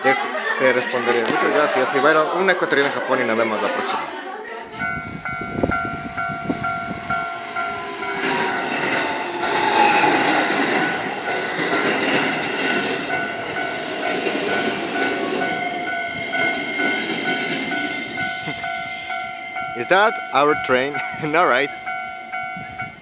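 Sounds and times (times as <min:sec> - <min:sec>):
electric train passing: 0:00.0 - 0:23.0
level-crossing warning bell: 0:04.7 - 0:23.0.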